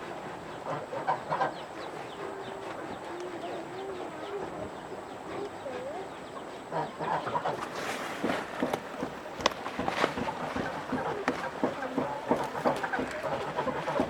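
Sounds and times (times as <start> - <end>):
chickens clucking: 0.0 - 14.0
knocks: 8.2 - 14.0.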